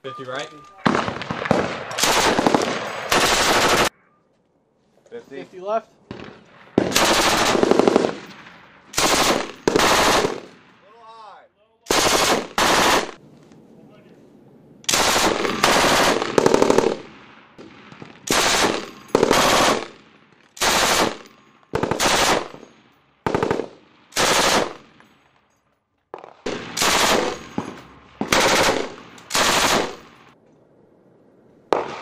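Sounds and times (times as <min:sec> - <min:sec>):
machine gun bursts with echo: 0:00.9 - 0:03.9, 0:06.8 - 0:08.3, 0:08.9 - 0:10.6, 0:11.9 - 0:13.2, 0:14.9 - 0:17.1, 0:18.2 - 0:20.0, 0:20.6 - 0:24.9, 0:26.5 - 0:30.4.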